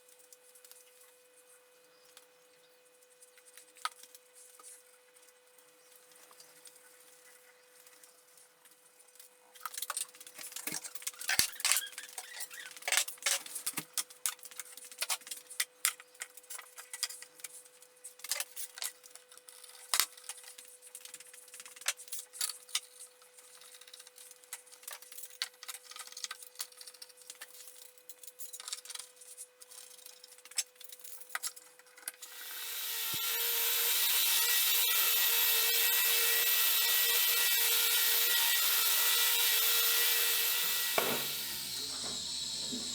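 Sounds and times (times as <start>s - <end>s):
power tool running: 32.2s - 42.9s
wood and tools clicking and knocking: 39.1s - 42.9s.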